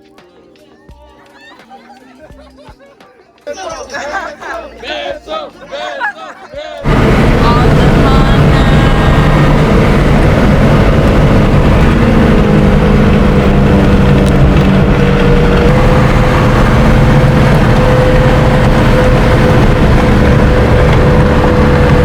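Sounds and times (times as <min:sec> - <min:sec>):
car engine hum: 0:06.8 - 0:22.0
road noise: 0:06.8 - 0:22.0.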